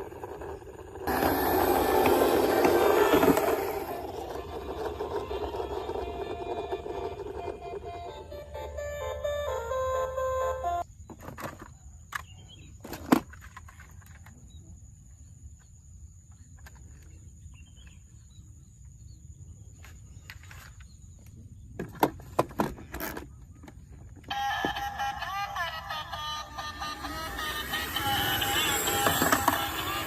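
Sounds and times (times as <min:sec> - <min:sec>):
toy cars clicking on hard surface: 0:00.0 - 0:08.2, 0:24.2 - 0:30.0.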